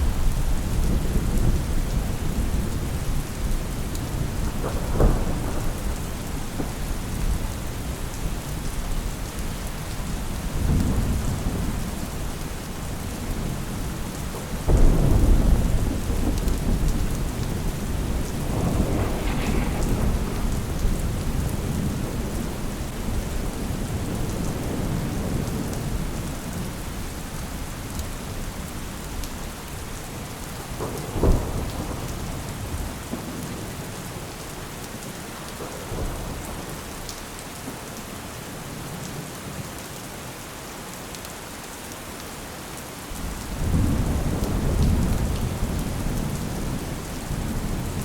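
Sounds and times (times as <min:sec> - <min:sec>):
steady rain falling: 0:00.0 - 0:48.0
thunder rumbling: 0:14.3 - 0:26.2.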